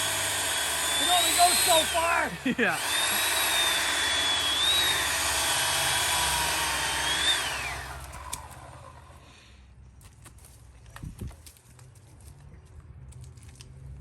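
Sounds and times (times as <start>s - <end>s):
electric chainsaw whining: 0.0s - 9.3s.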